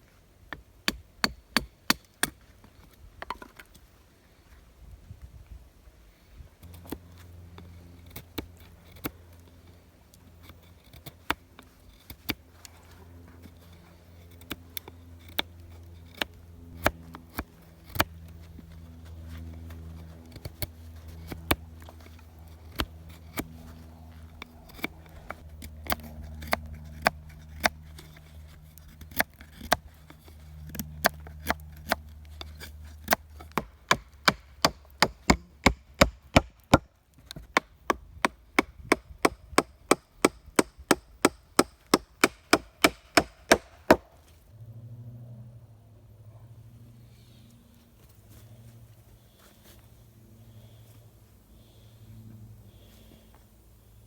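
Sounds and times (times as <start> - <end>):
low steady hum: 0.0 - 54.0
wood being chopped: 33.0 - 44.2.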